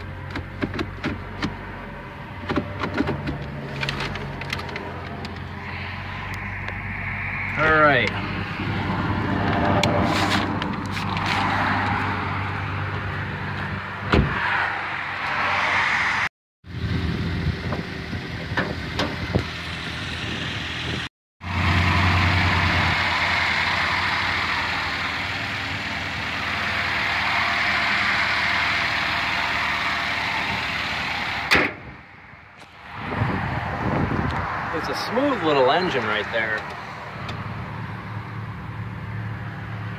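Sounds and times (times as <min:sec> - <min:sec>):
car engine idling: 0:20.8 - 0:33.0.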